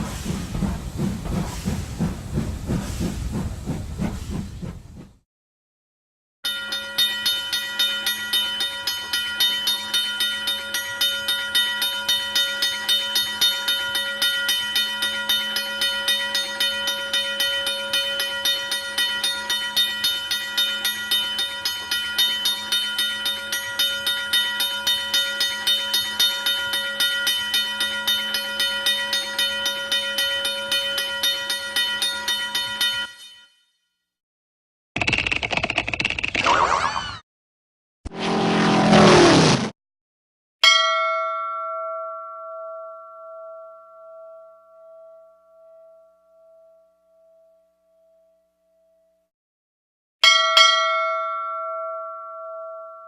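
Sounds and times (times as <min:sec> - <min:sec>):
train wheels clattering: 0:00.0 - 0:05.2.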